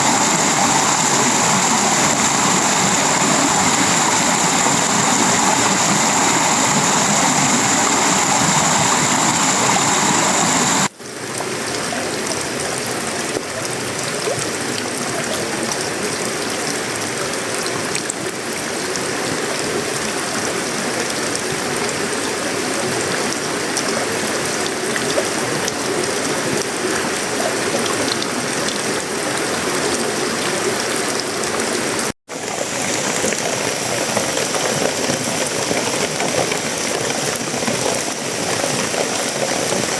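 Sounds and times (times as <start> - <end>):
high steady whine: 0.0 - 10.9
rain drumming on metal roof: 31.9 - 39.9.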